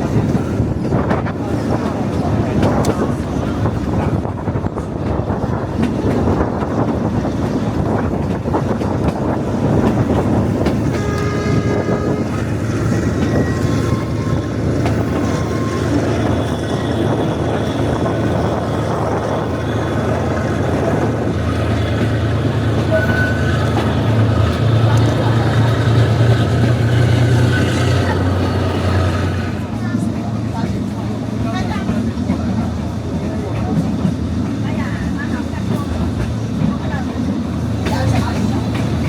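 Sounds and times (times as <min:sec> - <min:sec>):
train wheels rumbling and clattering: 0:00.0 - 0:39.0
train horn: 0:10.8 - 0:16.0, 0:22.8 - 0:23.8.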